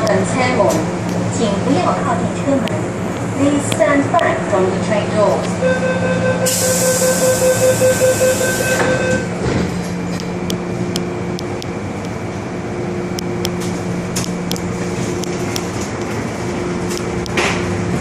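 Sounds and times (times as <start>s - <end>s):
train electrical ventilation hum: 0.0s - 18.0s
door-closing warning beeps: 5.6s - 9.3s
train doors knocking shut: 8.5s - 9.8s.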